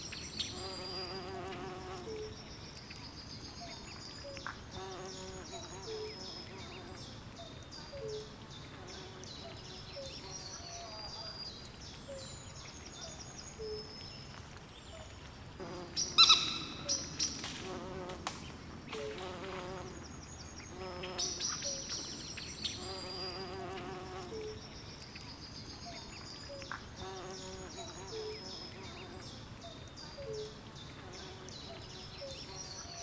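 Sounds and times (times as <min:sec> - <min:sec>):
faint steady hiss: 0:00.0 - 0:33.0.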